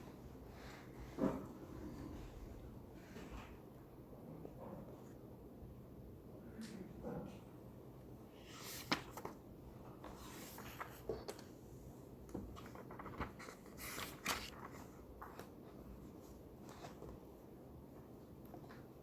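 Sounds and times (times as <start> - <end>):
paper rustles: 8.4 - 11.6, 12.3 - 17.2.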